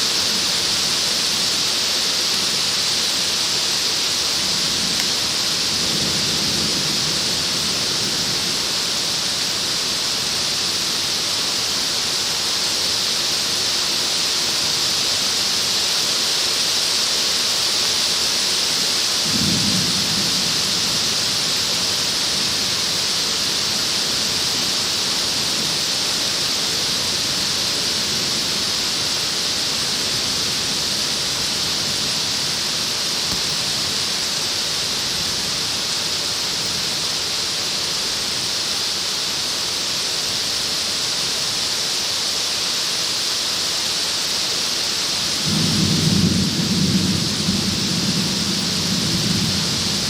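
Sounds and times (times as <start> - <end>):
rain pelting plastic sheet: 0.0 - 50.0
low thunder rumble: 45.4 - 50.0.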